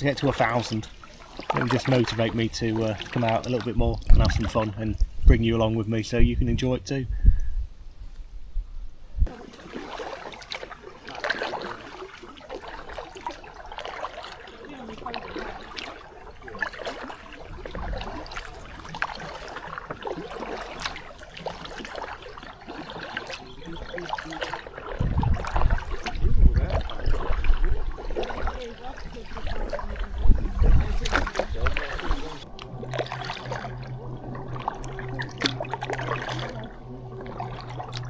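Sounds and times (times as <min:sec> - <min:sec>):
water dripping off paddle: 0:00.0 - 0:05.3, 0:09.3 - 0:38.0
paddle splashing in water: 0:00.0 - 0:05.4, 0:09.2 - 0:38.0
low rumble: 0:00.0 - 0:09.4, 0:14.9 - 0:22.5, 0:24.6 - 0:38.0.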